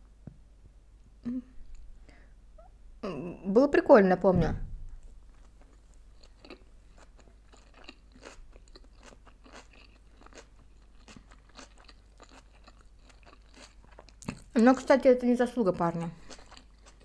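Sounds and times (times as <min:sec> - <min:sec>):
faint chewing crunches: 0:05.0 - 0:17.0.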